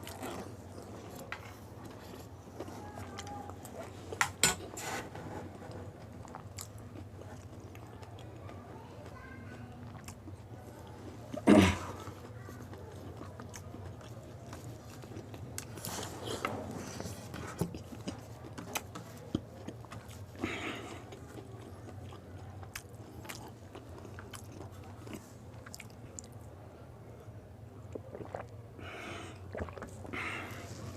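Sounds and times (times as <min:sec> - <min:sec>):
crisp shells being bitten and chewed: 0:17.5 - 0:26.4.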